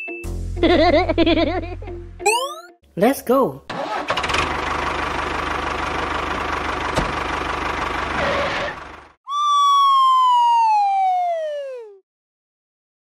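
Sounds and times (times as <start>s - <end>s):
tractor engine putter: 3.7s - 8.9s
whistle sliding down in pitch: 9.3s - 12.0s.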